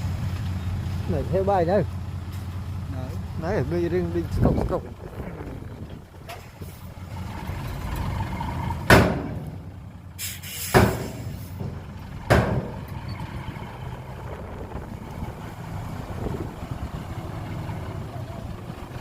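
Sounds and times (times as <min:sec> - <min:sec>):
diesel machinery rumbling: 0:00.0 - 0:19.0
loud sharp bangs: 0:08.8 - 0:09.6, 0:10.7 - 0:12.9
short hiss: 0:10.2 - 0:11.6.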